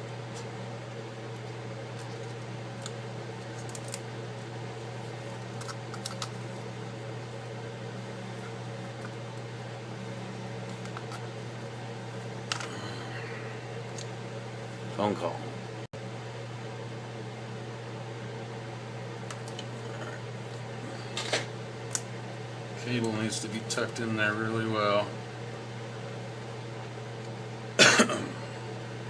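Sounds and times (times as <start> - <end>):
low hum: 0.0 - 18.2.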